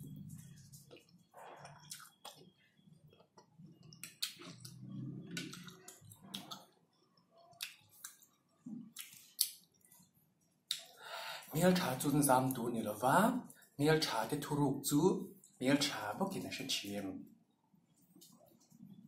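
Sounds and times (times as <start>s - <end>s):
person chewing noodles: 0.1s - 11.0s
wet mouth clicks and smacks: 0.9s - 2.5s, 3.1s - 6.8s, 7.5s - 9.9s, 10.7s - 11.0s.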